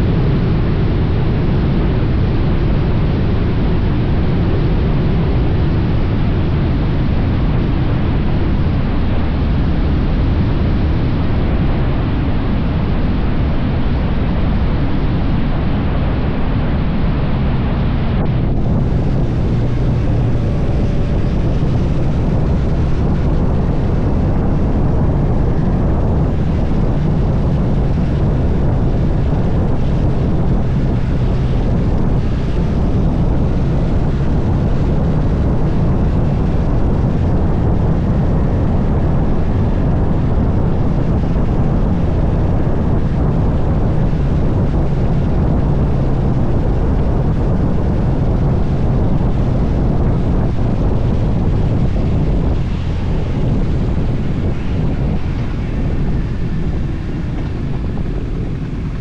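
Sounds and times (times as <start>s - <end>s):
wind rush on microphone: 0.0s - 59.0s
motorcycle engine running: 18.2s - 59.0s.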